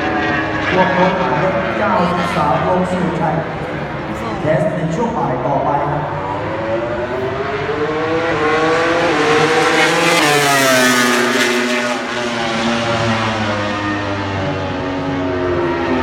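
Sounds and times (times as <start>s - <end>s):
race motorcycle passing by: 6.2s - 16.0s.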